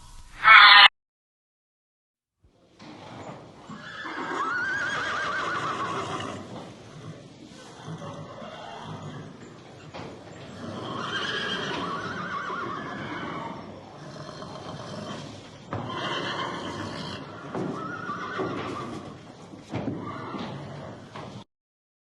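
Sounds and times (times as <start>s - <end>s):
horse whinnying: 0.4s - 0.9s, 3.6s - 6.5s, 7.6s - 9.4s, 10.5s - 19.2s, 19.9s - 21.1s.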